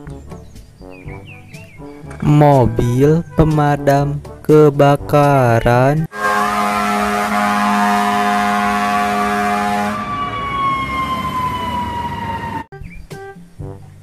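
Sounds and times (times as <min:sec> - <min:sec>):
fire truck horn: 0:06.1 - 0:12.7
wailing siren: 0:06.1 - 0:12.7.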